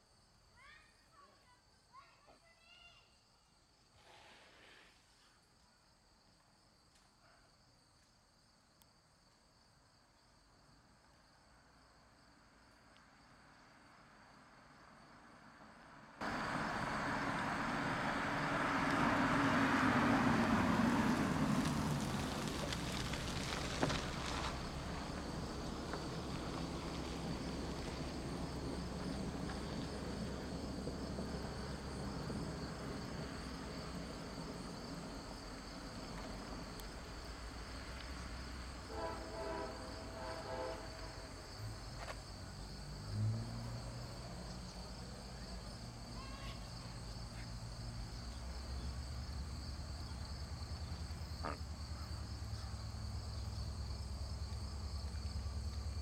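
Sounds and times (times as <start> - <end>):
diesel locomotive rumbling: 16.2 - 56.0.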